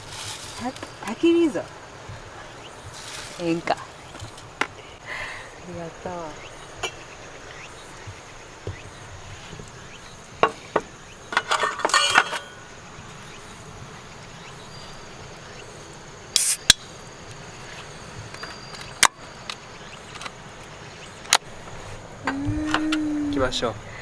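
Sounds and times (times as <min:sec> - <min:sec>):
night insects chirping: 0:00.0 - 0:24.0
dishes and utensils clinking: 0:11.3 - 0:12.6
short sharp hiss: 0:16.4 - 0:16.9.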